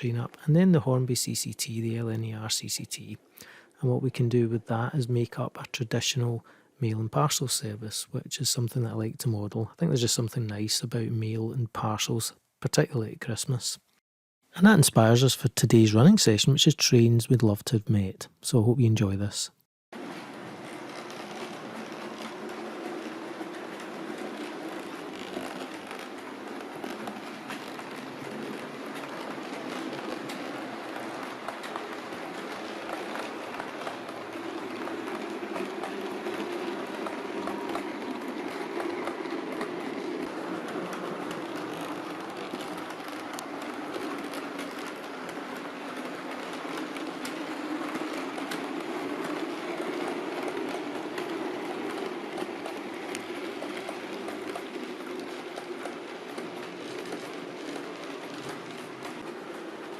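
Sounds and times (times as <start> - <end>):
wheels clicking over rail joints: 20.0 - 59.9
model train motor whirring: 20.1 - 39.7.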